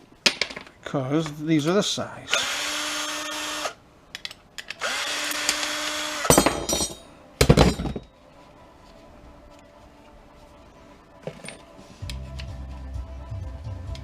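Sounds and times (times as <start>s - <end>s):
power drill motor whining: 2.3s - 3.8s, 4.8s - 6.3s.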